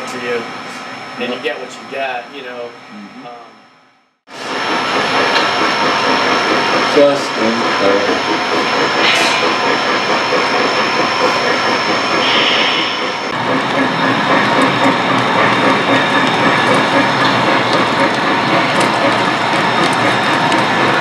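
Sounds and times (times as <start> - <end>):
model train rattling on track: 4.5 - 21.0.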